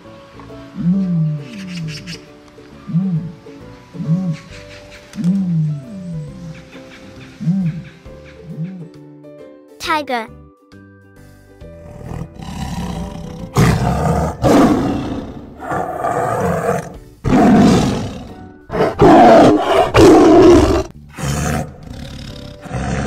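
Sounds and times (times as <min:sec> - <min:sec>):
tiger roaring: 0:11.8 - 0:23.0.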